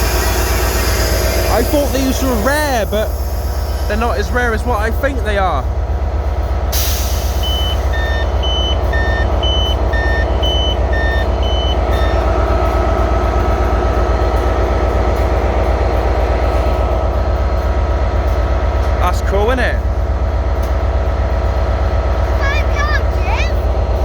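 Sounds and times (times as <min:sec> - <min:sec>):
train engines idling: 0:00.0 - 0:24.0
two-tone door warning beeps: 0:07.4 - 0:12.3.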